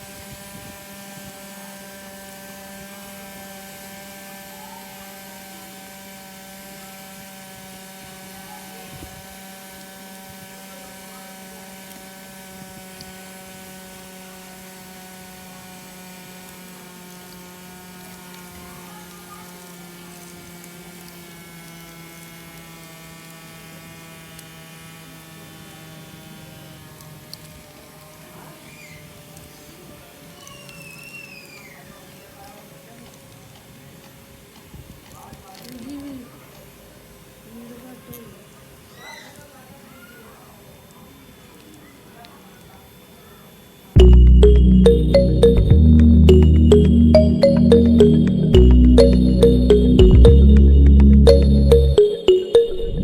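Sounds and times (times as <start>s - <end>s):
small motor humming: 0.0s - 30.3s.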